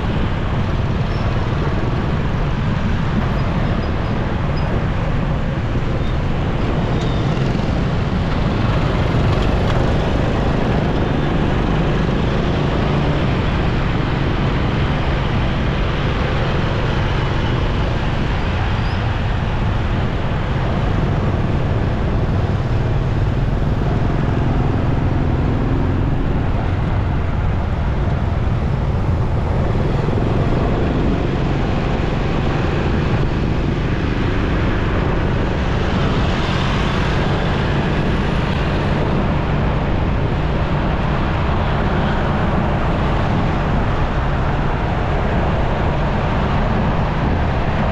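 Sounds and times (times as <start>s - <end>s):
tyre road noise: 0.0s - 47.9s
motorcycle engine: 6.7s - 15.9s, 16.8s - 40.8s.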